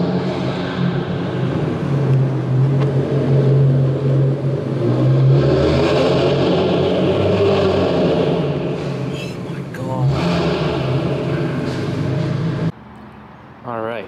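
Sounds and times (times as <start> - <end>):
car engine echoing in garage: 0.0 - 14.0.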